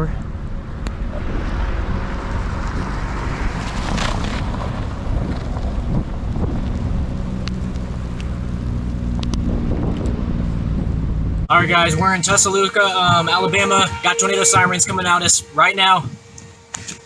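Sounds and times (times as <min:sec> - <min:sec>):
vehicle engine and road noise: 0:00.0 - 0:11.5
rush of noise: 0:00.0 - 0:11.6.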